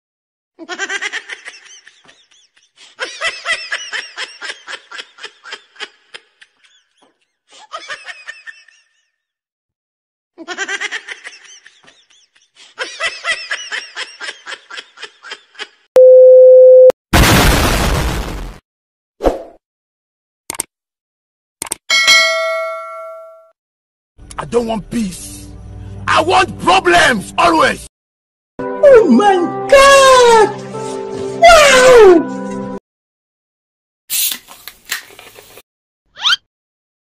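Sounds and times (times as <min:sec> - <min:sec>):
loud steady beep tone: 0:16.0 - 0:16.9
explosion sound effect: 0:17.1 - 0:18.6.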